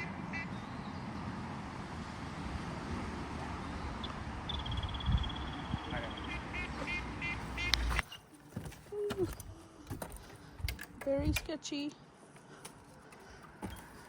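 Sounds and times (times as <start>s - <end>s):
ducks quacking: 0.0s - 0.6s, 6.0s - 8.0s
wind rumble: 1.0s - 8.0s.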